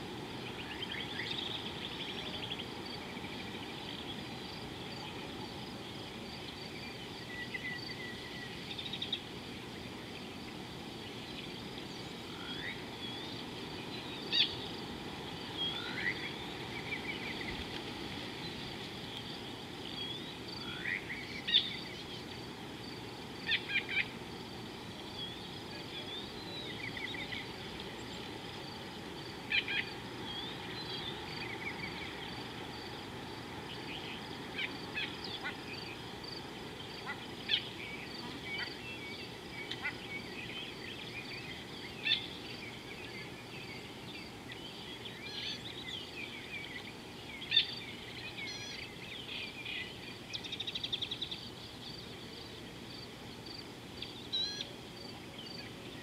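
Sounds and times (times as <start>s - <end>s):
low outdoor hiss: 0.0s - 56.0s
high-pitched bird chorus: 11.0s - 17.7s, 19.2s - 22.4s, 25.0s - 28.4s, 33.6s - 52.2s, 53.4s - 54.7s
bird chirps: 54.0s - 54.7s.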